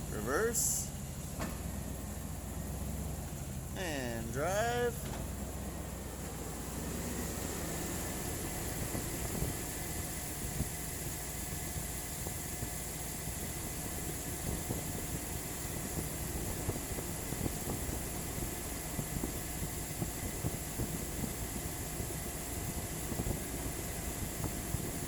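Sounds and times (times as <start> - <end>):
light irregular engine ticking: 0.0 - 4.2, 4.9 - 25.0
car engine idling: 0.0 - 24.5.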